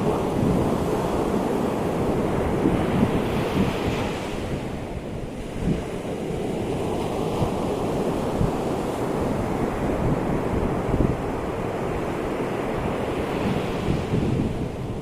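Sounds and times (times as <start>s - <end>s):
ocean surf breaking: 0.0s - 15.0s
wind on microphone: 0.0s - 15.0s.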